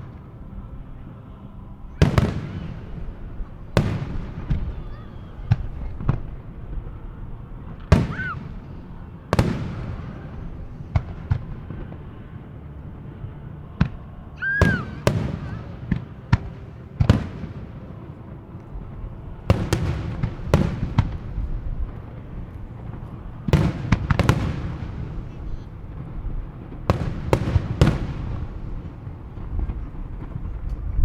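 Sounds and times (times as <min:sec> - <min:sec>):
fireworks bursting with sharp bangs: 0:01.9 - 0:12.6, 0:13.8 - 0:31.0.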